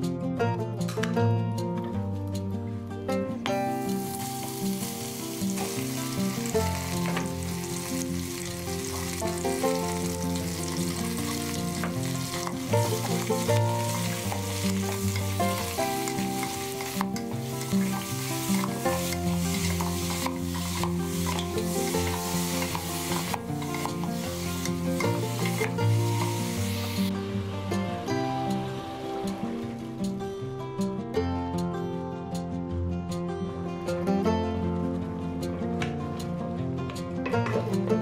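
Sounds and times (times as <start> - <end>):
soft background music: 0.0 - 38.0
oil sizzling with meat frying: 3.7 - 30.2.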